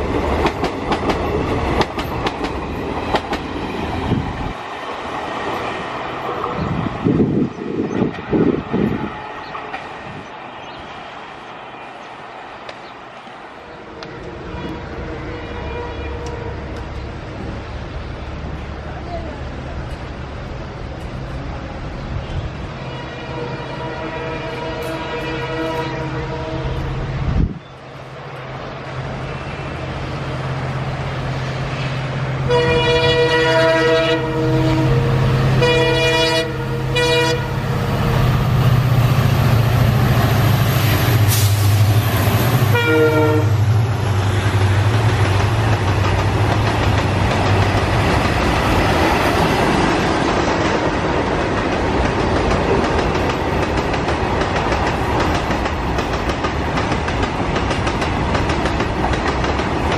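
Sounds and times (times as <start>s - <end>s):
train wheels rumbling and clattering: 0.0s - 11.4s, 28.4s - 59.9s
train horn blasts: 13.6s - 16.9s, 22.8s - 27.1s, 32.4s - 37.7s, 42.6s - 43.8s
diesel locomotive engine running: 26.4s - 59.9s.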